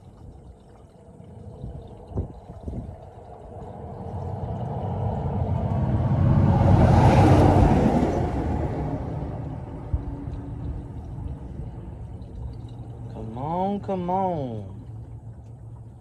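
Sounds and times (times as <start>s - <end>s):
vehicle passing on highway: 2.8s - 13.1s.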